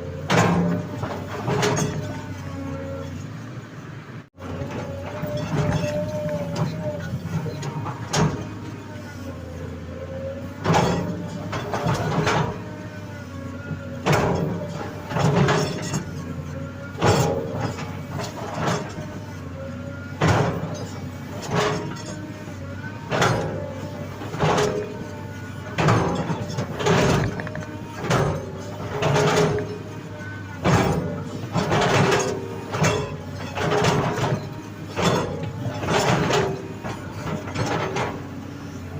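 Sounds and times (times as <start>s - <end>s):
excavator diesel engine: 0.0s - 38.9s
hydraulics straining: 4.4s - 38.9s
bucket scraping in soil: 23.9s - 30.0s.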